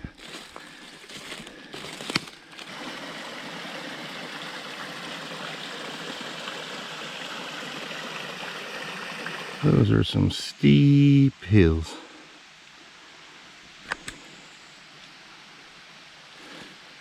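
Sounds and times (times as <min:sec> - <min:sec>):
rustles: 0:00.0 - 0:02.7
creek running: 0:00.2 - 0:13.9.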